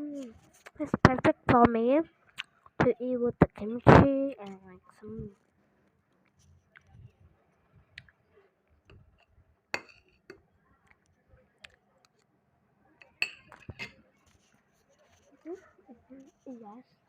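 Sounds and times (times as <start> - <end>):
utensils clinking against dishes: 13.2 - 14.0.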